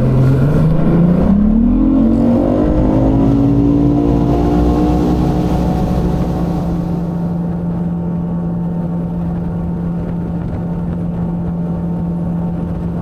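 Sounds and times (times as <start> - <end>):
outboard motor throttling up: 0.0 - 7.7.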